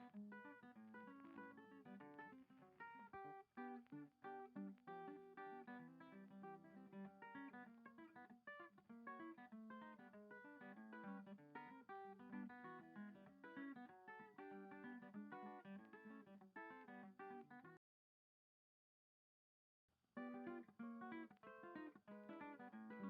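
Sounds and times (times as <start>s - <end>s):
acoustic guitar music: 0.0s - 17.8s, 20.2s - 23.0s.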